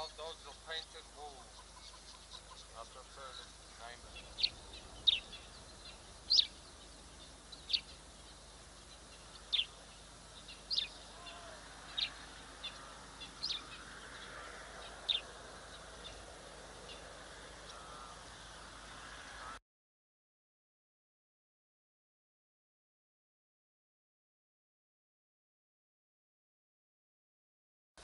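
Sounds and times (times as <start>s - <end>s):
bird chirping: 0.0s - 18.8s
faint outdoor background noise: 0.0s - 19.6s.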